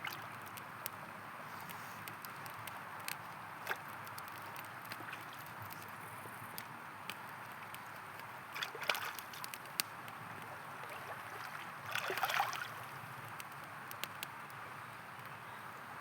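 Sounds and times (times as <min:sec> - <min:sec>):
campfire crackling and popping: 0:00.0 - 0:15.4
water gurgling and splashing: 0:10.8 - 0:12.8.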